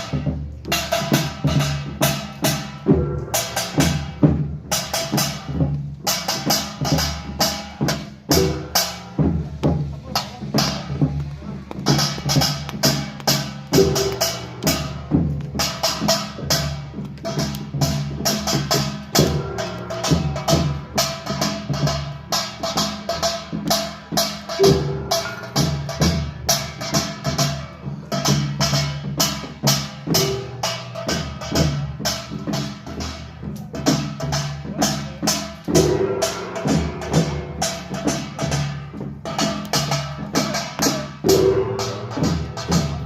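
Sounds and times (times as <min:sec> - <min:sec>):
drums and gongs playing fast rhythm: 0:00.0 - 0:43.0
sustained low ringing: 0:19.1 - 0:21.8, 0:24.6 - 0:26.3, 0:35.8 - 0:38.9.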